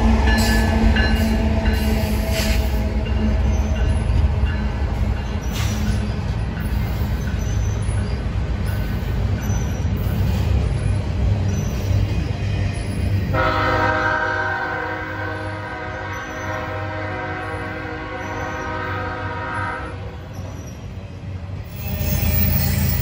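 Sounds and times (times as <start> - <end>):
freight train rumbling on rails: 0.0 - 23.0
locomotive air horn chord: 13.3 - 20.0.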